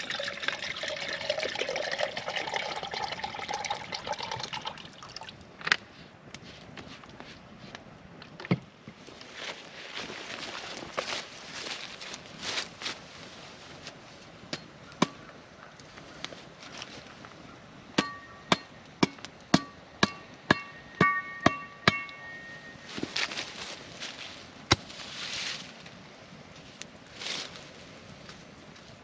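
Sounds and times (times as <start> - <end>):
metal object struck ringing: 20.1 - 22.9.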